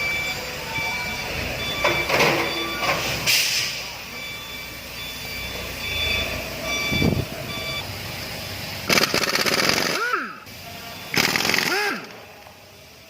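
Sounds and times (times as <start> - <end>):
vehicle reversing beeper: 0.0 - 13.0
loud rattling noise: 8.9 - 10.2, 11.2 - 12.1.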